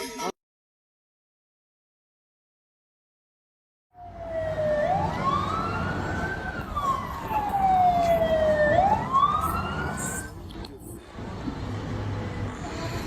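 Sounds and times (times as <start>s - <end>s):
emergency siren wailing: 4.0s - 10.4s.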